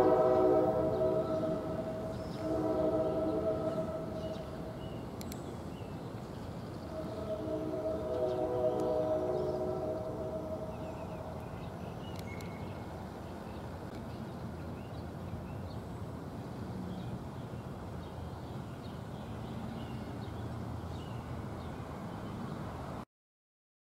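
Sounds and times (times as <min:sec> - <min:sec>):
birds chirping: 0:00.0 - 0:06.0, 0:06.7 - 0:12.8
train rumbling: 0:00.0 - 0:17.9.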